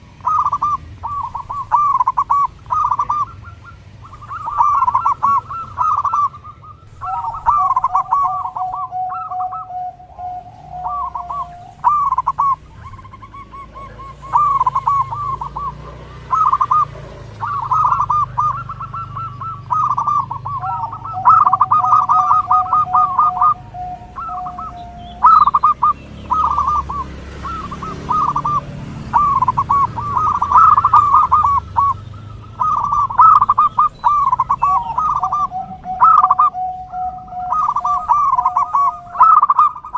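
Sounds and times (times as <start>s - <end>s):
doves cooing: 0.0s - 39.9s
long low steady tone: 34.7s - 39.2s.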